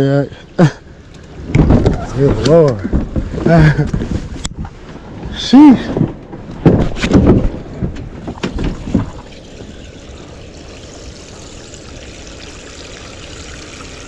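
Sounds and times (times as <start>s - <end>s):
water pouring and trickling: 8.3s - 14.0s.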